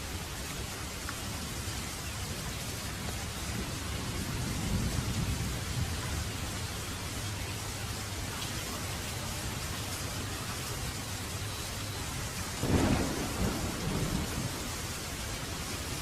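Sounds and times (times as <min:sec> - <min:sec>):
heavy rain hissing: 0:00.0 - 0:16.0
thunderclap rolling: 0:12.6 - 0:16.0.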